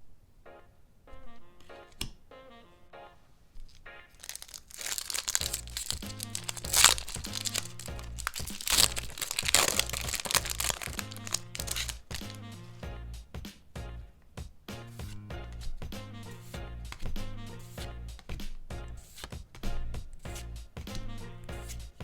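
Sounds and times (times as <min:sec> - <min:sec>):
background music: 0:00.4 - 0:22.0
packaging crinkling and tearing: 0:03.7 - 0:12.4.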